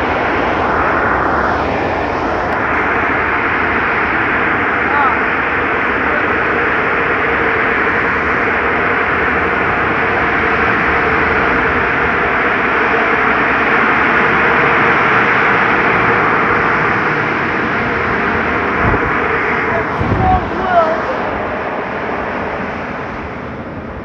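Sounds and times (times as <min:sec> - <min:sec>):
air dryers blowing: 0:17.4 - 0:22.8.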